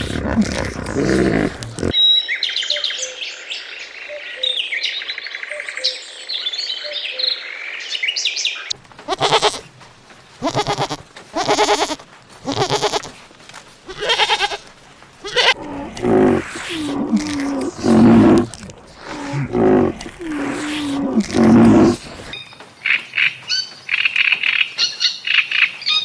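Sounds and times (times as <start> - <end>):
goat bleating: 9.1 - 9.7, 10.4 - 13.2, 13.9 - 22.3
small birds chirping: 9.1 - 13.2, 13.9 - 22.5.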